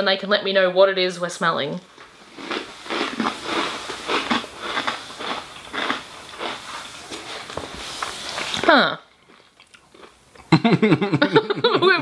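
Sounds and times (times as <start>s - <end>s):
crunchy potato straws chewed: 2.0s - 10.6s.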